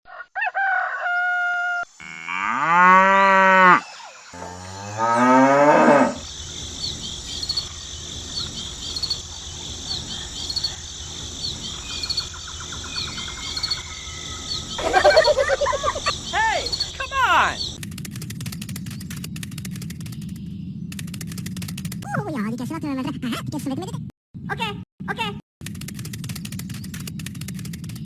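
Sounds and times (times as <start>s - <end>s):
insects chirping: 0.9s - 17.8s
cow mooing: 2.0s - 3.8s, 4.4s - 6.2s.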